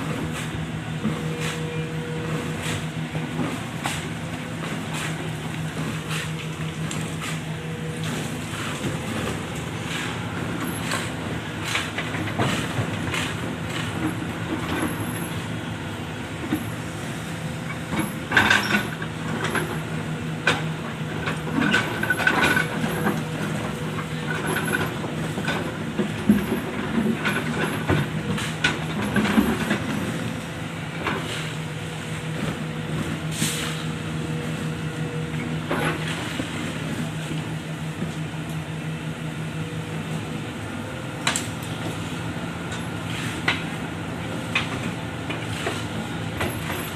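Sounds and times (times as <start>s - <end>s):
excavator diesel engine running: 0.0s - 46.9s
machinery knocks and clatter: 2.3s - 15.4s, 17.7s - 31.5s, 42.7s - 46.9s.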